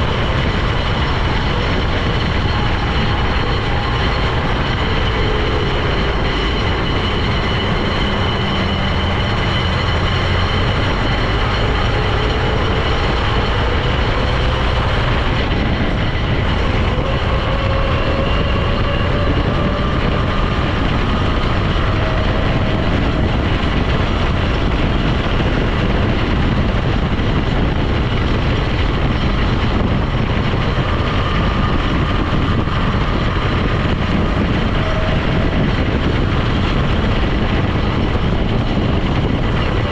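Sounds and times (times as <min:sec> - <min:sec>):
faint rising whine: 0:00.0 - 0:26.8
vehicle engine and road noise: 0:00.0 - 0:39.9.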